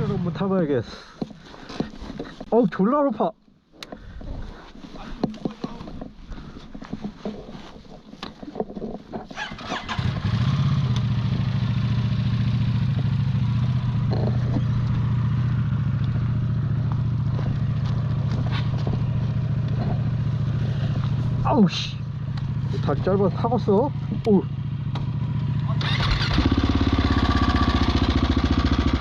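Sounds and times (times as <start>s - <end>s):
motorcycle engine idling: 9.4s - 29.0s
engine clicks and knocks: 25.8s - 27.2s.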